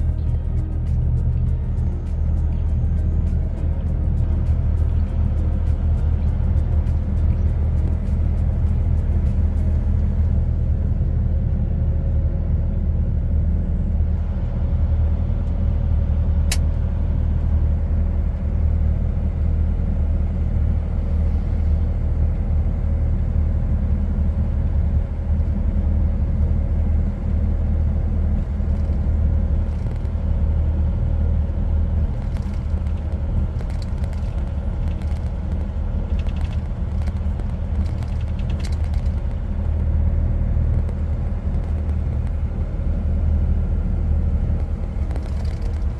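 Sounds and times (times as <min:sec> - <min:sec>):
truck engine and road drone: 0:00.0 - 0:45.9
sharp click: 0:16.5 - 0:16.7.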